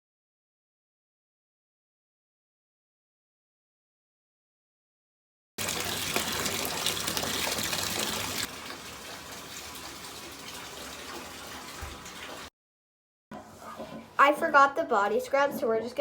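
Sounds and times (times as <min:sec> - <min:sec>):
water running from a tap: 0:05.6 - 0:12.5.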